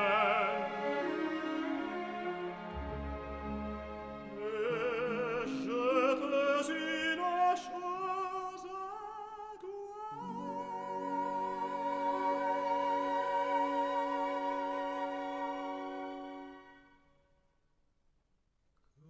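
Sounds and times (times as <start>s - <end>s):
operatic solo voice singing: 0.0s - 2.4s, 4.3s - 16.4s
orchestral accompaniment: 0.0s - 6.8s, 10.2s - 17.1s.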